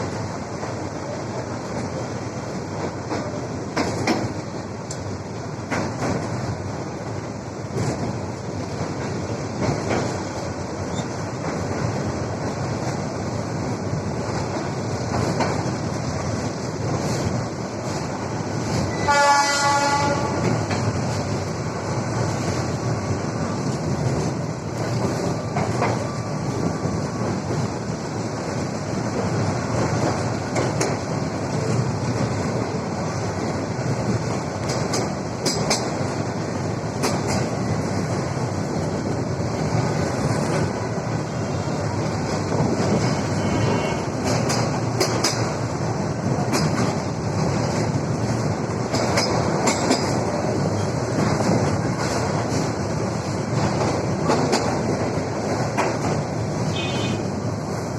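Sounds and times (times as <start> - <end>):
train rumbling on rails: 0.0 - 57.9
train horn: 18.9 - 20.6, 43.2 - 44.2, 56.7 - 57.3.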